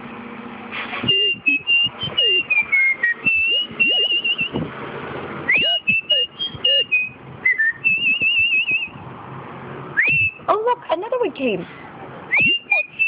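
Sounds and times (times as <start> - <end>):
person whistling a melody: 1.0 - 4.6, 5.5 - 8.9, 10.0 - 10.5, 12.3 - 13.0.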